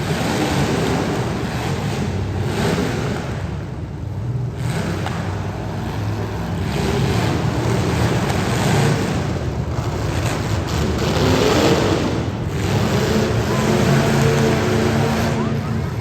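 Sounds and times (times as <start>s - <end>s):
car engines running: 0.0s - 16.0s.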